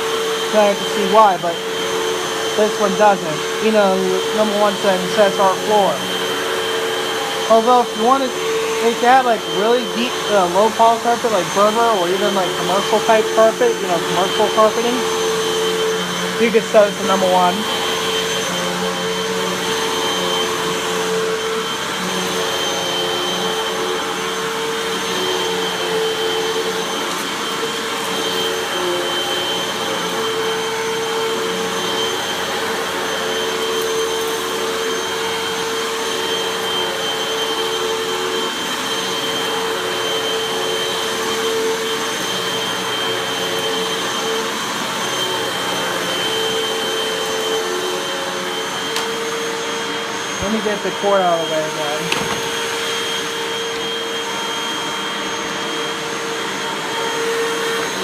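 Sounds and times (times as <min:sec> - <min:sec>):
vacuum cleaner running over carpet: 0:00.0 - 0:58.0.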